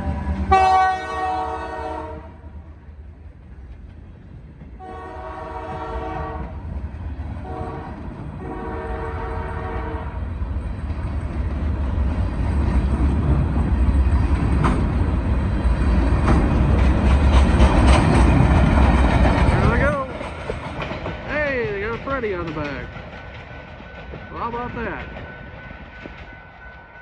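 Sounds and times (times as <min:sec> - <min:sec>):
train rumbling past: 0:00.0 - 0:27.0
locomotive air horn blasts: 0:00.5 - 0:02.4, 0:04.8 - 0:06.5, 0:07.4 - 0:10.2
wheels clicking over rail joints: 0:10.5 - 0:26.8.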